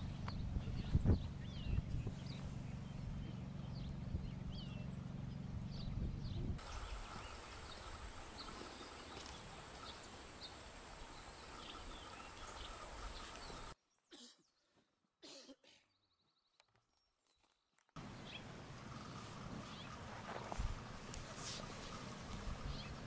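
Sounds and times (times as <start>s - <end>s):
low hum: 0.0s - 13.8s
small birds chirping: 0.0s - 14.8s, 15.9s - 23.0s.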